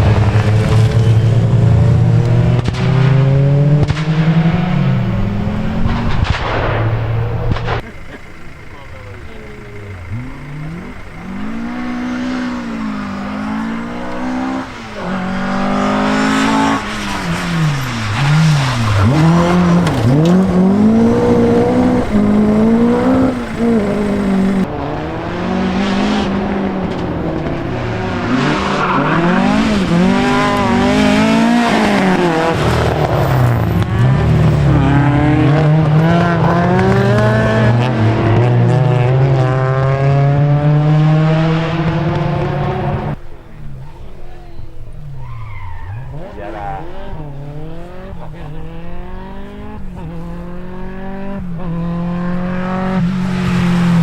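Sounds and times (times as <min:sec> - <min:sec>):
rally car engine revving: 0:00.0 - 0:54.0
exhaust cracks and pops: 0:02.2 - 0:04.8, 0:05.4 - 0:09.3, 0:16.0 - 0:24.7.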